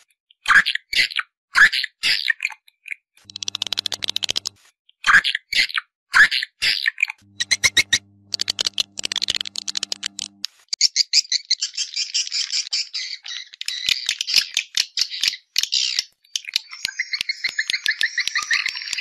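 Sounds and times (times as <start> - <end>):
low steady hum: 3.3 - 4.6, 7.2 - 10.4
swiftlets twittering: 7.3 - 10.4.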